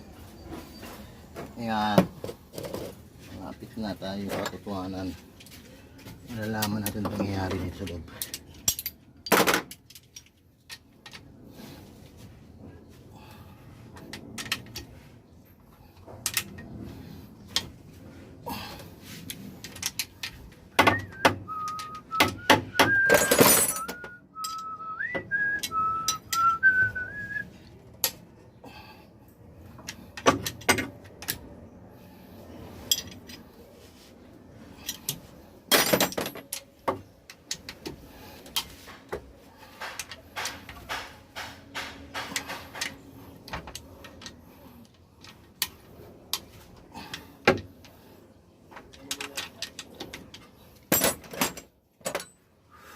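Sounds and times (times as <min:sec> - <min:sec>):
metal tools clinking and knocking: 0:06.5 - 0:11.3, 0:19.6 - 0:24.8, 0:32.8 - 0:33.5, 0:34.8 - 0:37.8, 0:48.8 - 0:52.5
person whistling a tune: 0:20.8 - 0:27.5.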